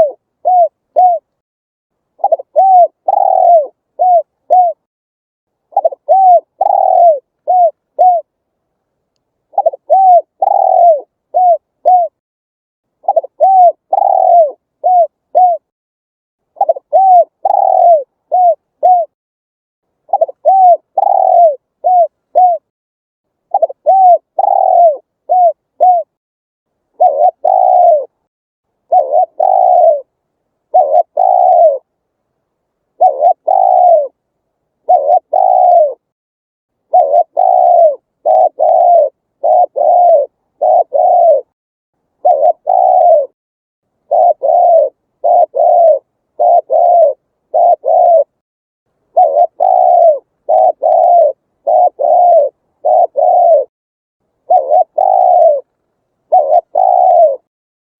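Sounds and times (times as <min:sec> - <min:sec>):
dove cooing: 0:00.0 - 0:01.4, 0:02.2 - 0:04.9, 0:05.7 - 0:08.3, 0:09.5 - 0:12.2, 0:13.0 - 0:15.7, 0:16.5 - 0:19.2, 0:20.1 - 0:22.7, 0:23.5 - 0:26.2, 0:27.0 - 0:28.2, 0:28.8 - 0:31.9, 0:33.0 - 0:34.2, 0:34.8 - 0:36.1, 0:36.9 - 0:41.6, 0:42.2 - 0:43.4, 0:44.0 - 0:48.4, 0:49.1 - 0:53.7, 0:54.4 - 0:57.5.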